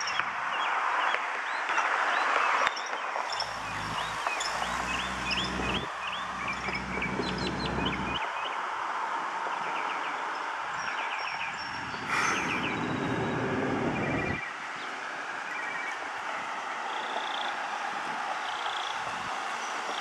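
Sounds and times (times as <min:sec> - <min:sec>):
small birds chirping: 0:03.2 - 0:08.2
traffic rumble: 0:03.2 - 0:08.2
vehicle engine hum: 0:03.2 - 0:08.2.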